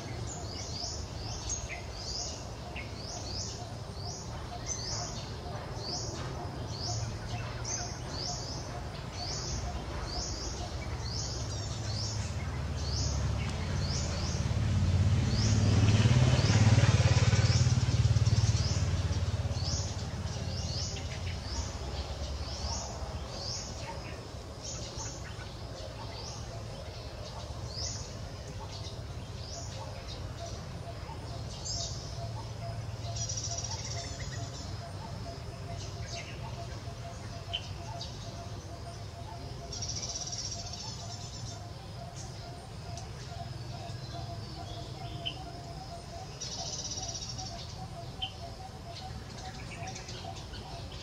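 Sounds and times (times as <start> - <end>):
small bird chirping: 17.4 - 51.0.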